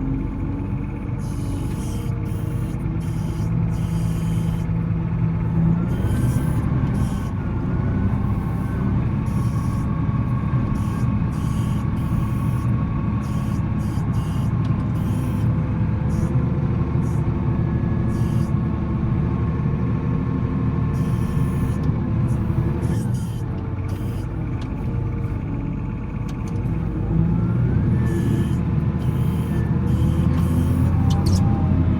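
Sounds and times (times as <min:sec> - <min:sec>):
faint wavering whine: 0:00.0 - 0:18.6, 0:26.6 - 0:31.8
diesel engine under load: 0:00.0 - 0:31.9.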